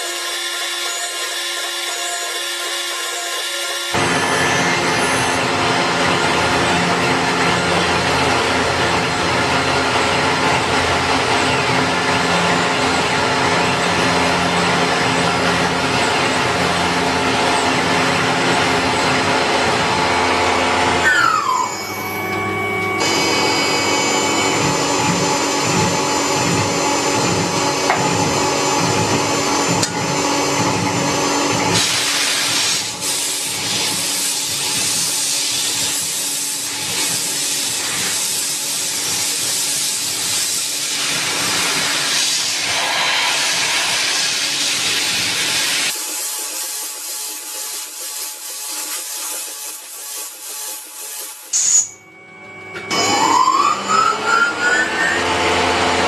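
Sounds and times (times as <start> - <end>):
machine tools humming: 0.0 - 56.0
falling tone: 51.9 - 55.5.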